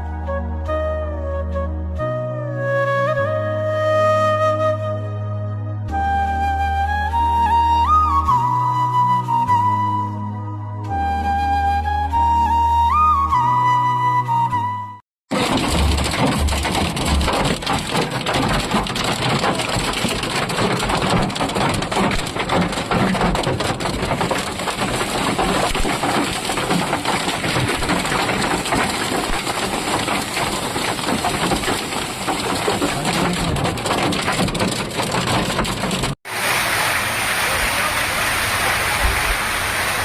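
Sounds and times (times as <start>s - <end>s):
low thumps: 15.3s - 36.2s
heavy rain on hard surfaces: 15.3s - 40.0s.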